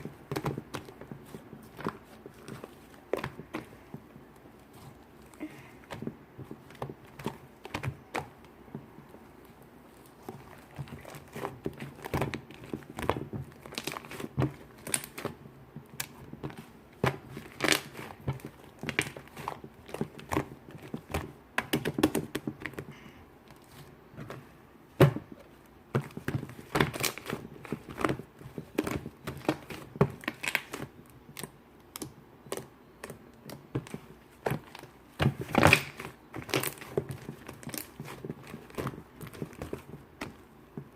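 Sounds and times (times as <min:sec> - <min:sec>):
shaving foam squishing: 0:00.0 - 0:21.3.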